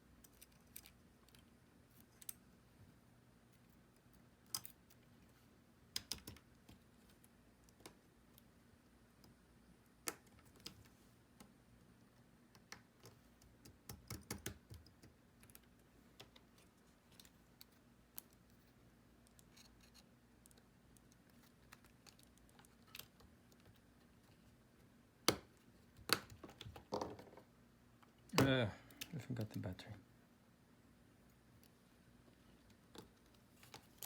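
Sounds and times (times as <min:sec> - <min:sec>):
faint steady hum: 0:00.0 - 0:34.0
small clicks and taps: 0:05.9 - 0:08.5, 0:12.5 - 0:18.6.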